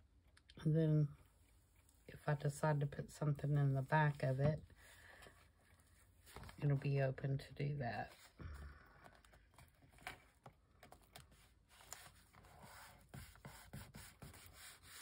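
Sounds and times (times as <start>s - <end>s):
soft paper rustles: 3.6s - 15.0s.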